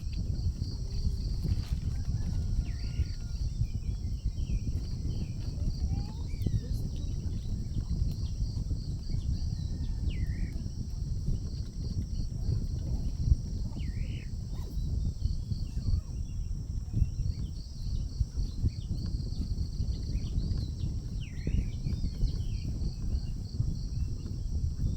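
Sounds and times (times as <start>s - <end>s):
high insect drone: 0.0s - 24.9s
insect chirps: 0.0s - 24.9s
low wind rumble on microphone: 0.0s - 24.9s.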